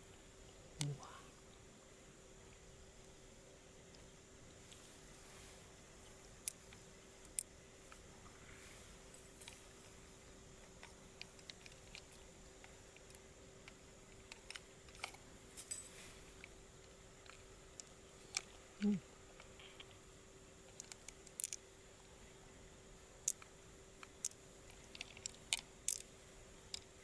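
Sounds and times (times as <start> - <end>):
faint steady hum: 0.0 - 27.0
small clicks and taps: 20.7 - 21.6, 23.2 - 26.1.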